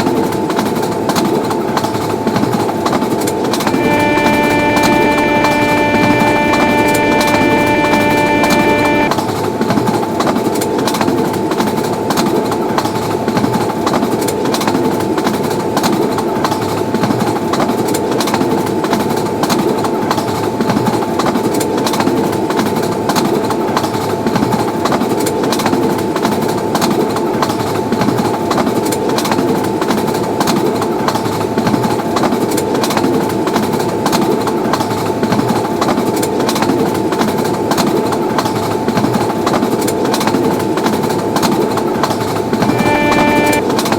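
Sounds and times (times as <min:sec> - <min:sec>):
thin steady whine: 0:03.7 - 0:09.1, 0:42.6 - 0:43.6
train rumbling past: 0:03.7 - 0:09.1, 0:42.5 - 0:43.6.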